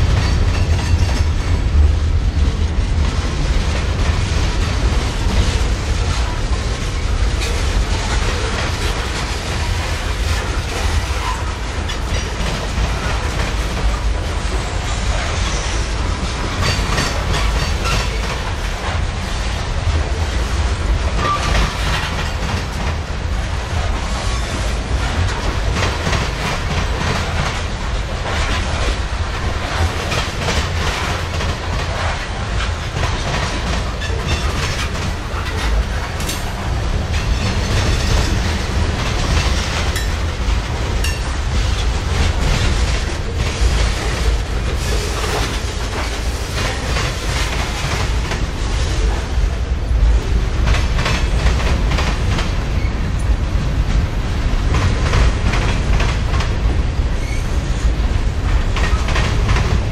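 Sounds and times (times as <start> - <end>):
wheels clacking over rail joints: 0.0 - 19.2, 20.9 - 49.1
freight train rumbling: 0.0 - 59.9.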